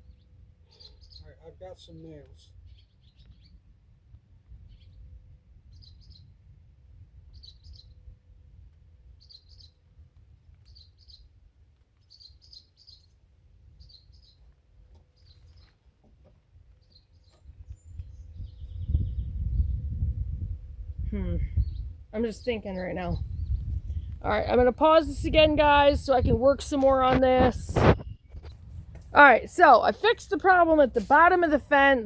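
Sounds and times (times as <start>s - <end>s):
faint high bird chirps: 0.0s - 2.0s, 5.7s - 6.4s, 7.3s - 8.1s, 9.2s - 9.8s, 12.0s - 13.2s, 13.8s - 14.5s, 16.8s - 20.1s, 20.9s - 24.2s.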